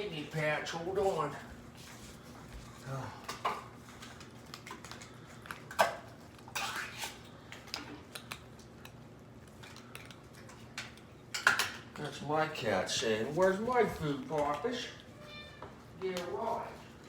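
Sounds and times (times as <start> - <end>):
spoon scraping cat food bowl: 6.3 - 7.3.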